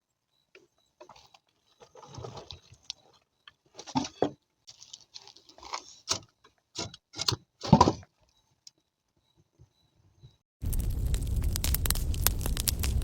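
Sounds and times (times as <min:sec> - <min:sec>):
wood fire crackling: 0:10.6 - 0:13.0.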